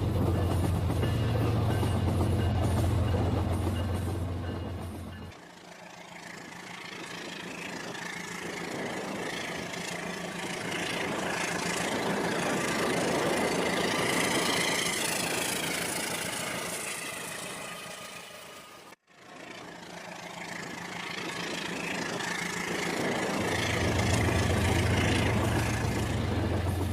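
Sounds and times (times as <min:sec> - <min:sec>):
toy train running on track: 0:05.4 - 0:26.9.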